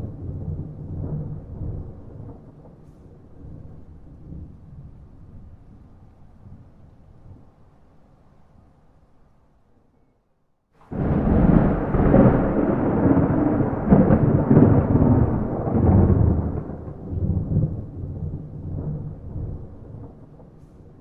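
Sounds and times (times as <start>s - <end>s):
thunder rumbling: 0.0s - 7.4s, 10.8s - 21.0s.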